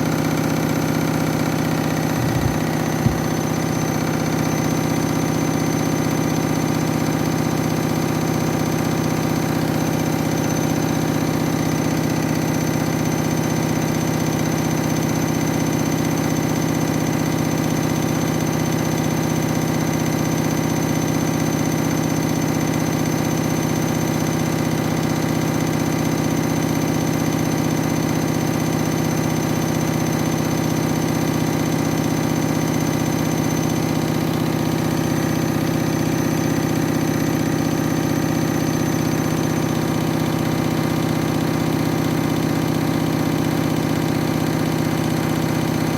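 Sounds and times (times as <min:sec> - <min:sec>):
washing machine motor whine: 0:00.0 - 0:45.9
washing machine rattling: 0:00.1 - 0:04.8.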